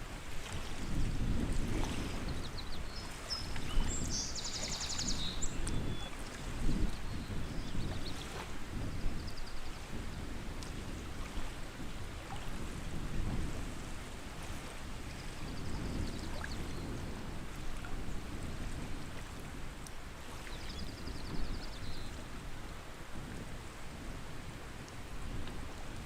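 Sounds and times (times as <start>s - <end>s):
water lapping: 0.0s - 20.8s.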